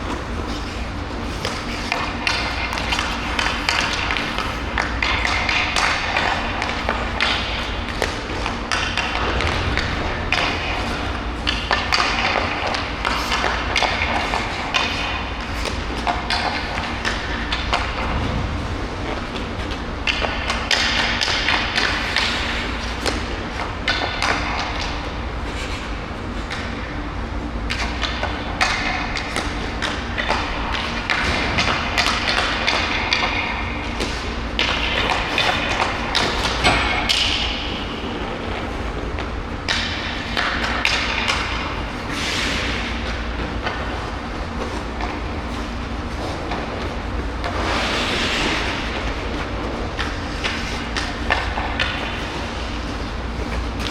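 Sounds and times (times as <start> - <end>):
hockey stick and puck on ice: 0.0 - 26.9, 27.7 - 53.9
low rumble: 8.4 - 12.7, 17.7 - 20.3.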